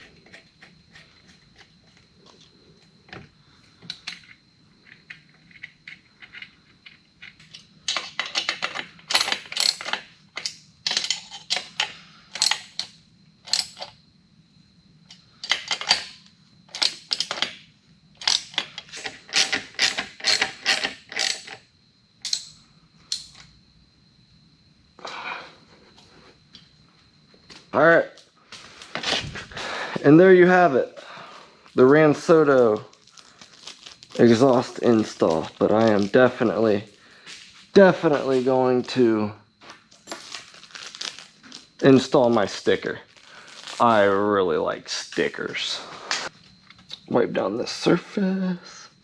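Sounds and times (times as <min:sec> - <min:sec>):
metal tool clicks: 0:22.2 - 0:23.5.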